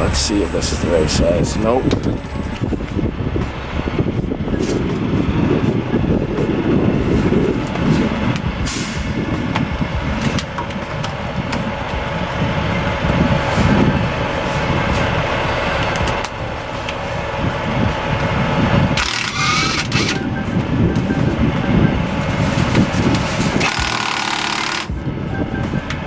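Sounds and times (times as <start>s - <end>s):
heavy truck engine idling: 0.0s - 26.0s
air hissing: 7.9s - 9.4s.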